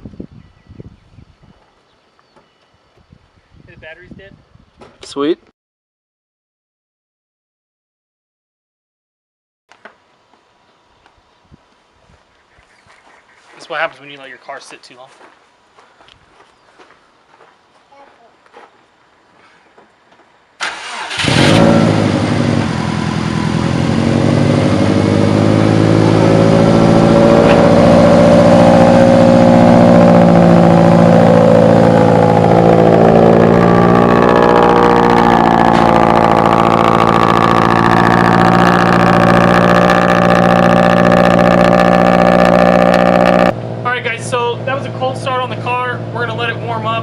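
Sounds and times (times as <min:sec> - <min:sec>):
engine cranking and starting: 0:20.6 - 0:22.1.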